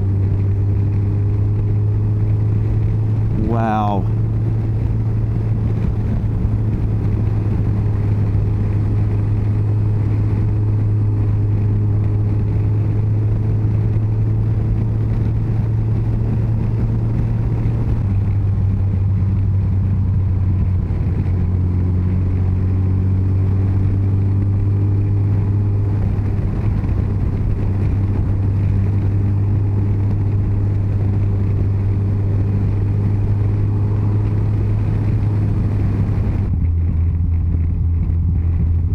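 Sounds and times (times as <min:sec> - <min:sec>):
wind and road noise: 0:00.0 - 0:38.9
motorcycle engine running: 0:17.7 - 0:38.9.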